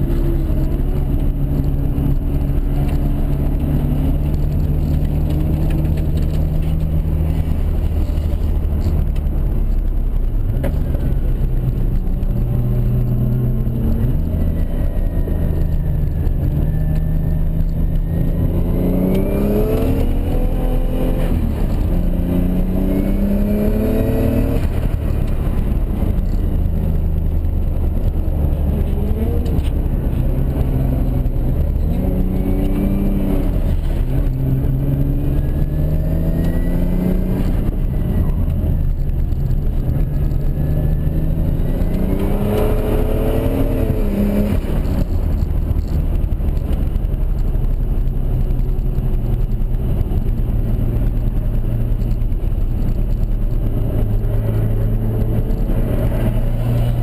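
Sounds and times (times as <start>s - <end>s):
car engine revving from inside: 39.8s - 45.0s.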